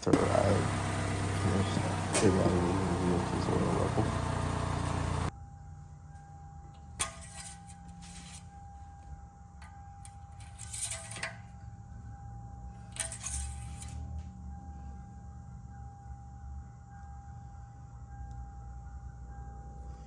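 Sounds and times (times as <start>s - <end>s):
steady low hum: 0.0s - 5.3s.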